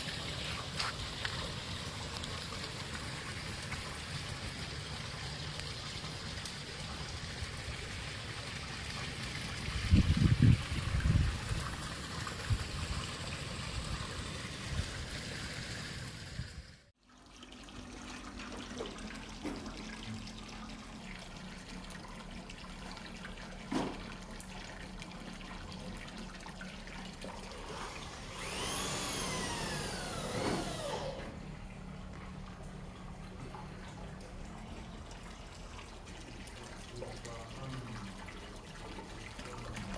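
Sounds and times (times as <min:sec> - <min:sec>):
water splashing into a pond: 0:00.0 - 0:16.4, 0:17.0 - 0:21.9, 0:34.4 - 0:39.9.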